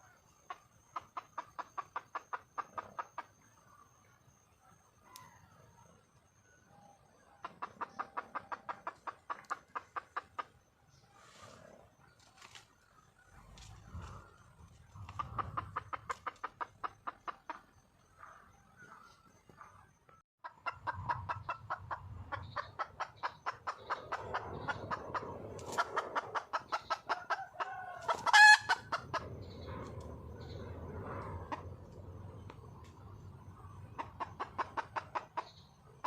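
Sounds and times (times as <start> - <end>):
hen cackling: 20.4 - 29.4.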